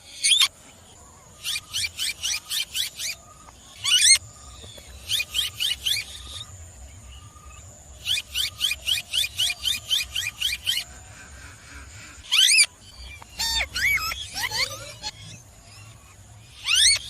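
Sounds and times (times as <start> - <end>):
parakeet calling: 5.0 - 6.5, 8.0 - 17.0.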